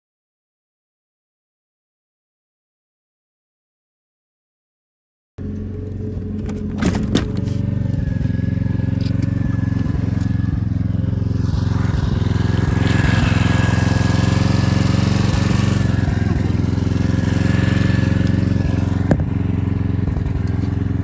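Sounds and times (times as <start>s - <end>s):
engine droning: 5.4s - 21.0s.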